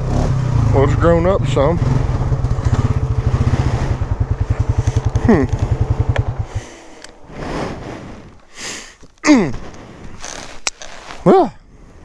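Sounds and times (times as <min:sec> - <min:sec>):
atv engine putter: 0:00.0 - 0:07.3.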